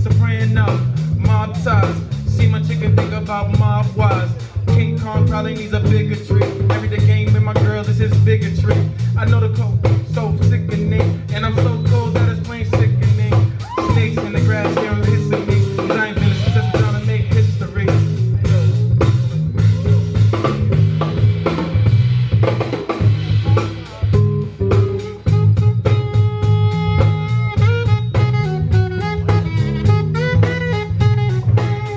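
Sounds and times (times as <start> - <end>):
person singing: 0.0 - 19.0
bass line: 0.0 - 31.9
drum kit beat: 0.0 - 31.9
guitar: 0.0 - 31.9.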